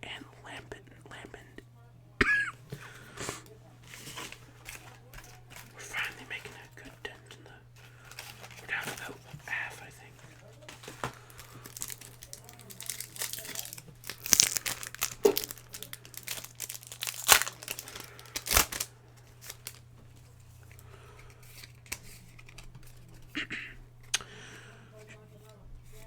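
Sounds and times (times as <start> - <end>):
foil wrapper tearing and crinkling: 3.9 - 6.7, 7.8 - 9.2, 10.7 - 19.8.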